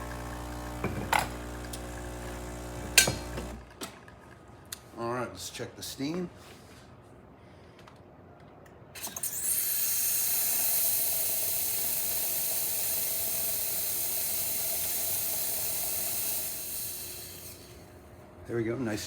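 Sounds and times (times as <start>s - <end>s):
steam wand hissing: 9.0s - 17.9s.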